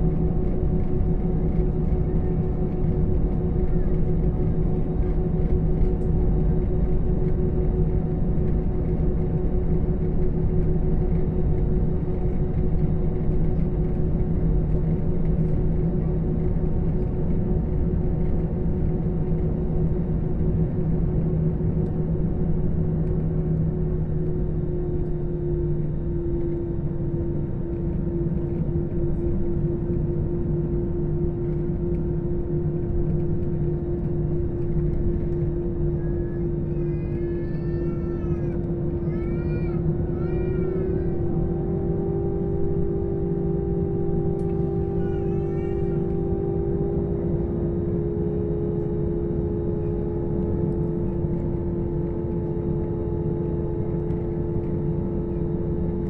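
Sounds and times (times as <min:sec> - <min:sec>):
jet engines droning: 0:00.0 - 0:56.0
steady hum tones: 0:20.0 - 0:56.0.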